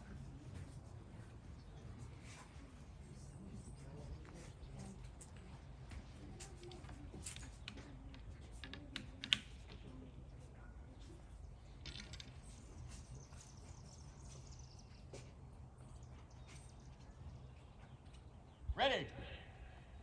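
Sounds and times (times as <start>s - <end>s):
light clicks and clinks: 4.8s - 10.0s, 11.0s - 13.9s.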